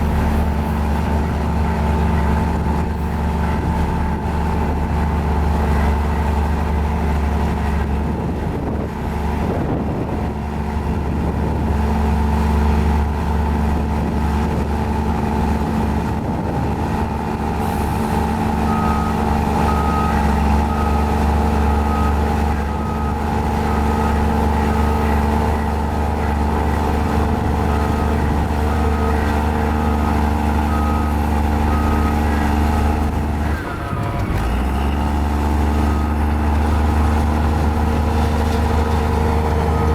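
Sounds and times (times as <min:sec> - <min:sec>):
bulldozer diesel engine running: 0:00.0 - 0:39.9
reversing alarm beeping: 0:17.6 - 0:38.0, 0:38.7 - 0:39.9.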